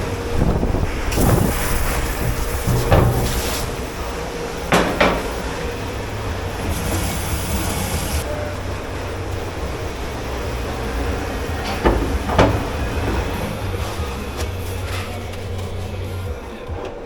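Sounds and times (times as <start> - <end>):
kitchen machinery rumble: 0.0 - 17.0
burst of hiss: 0.3 - 8.5
dishes clanking: 1.0 - 17.0.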